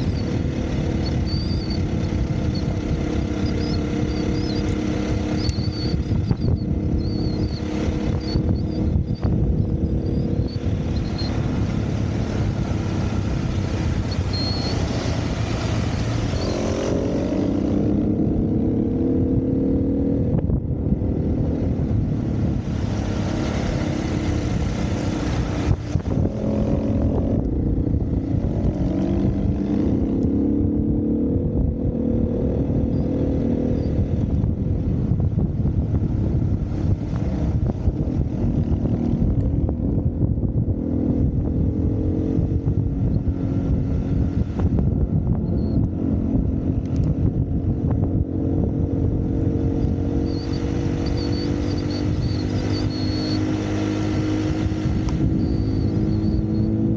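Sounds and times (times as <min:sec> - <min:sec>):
dirt bike engine revving: 0:00.0 - 0:20.2, 0:48.1 - 0:56.9
steady rushing noise: 0:00.0 - 0:56.9.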